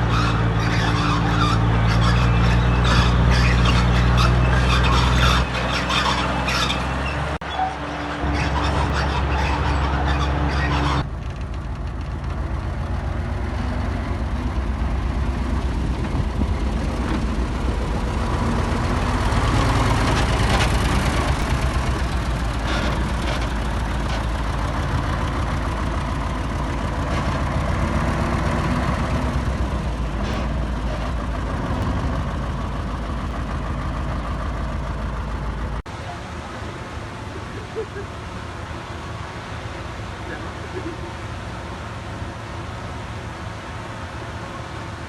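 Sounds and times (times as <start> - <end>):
heavy diesel machine engine: 0.0 - 45.0.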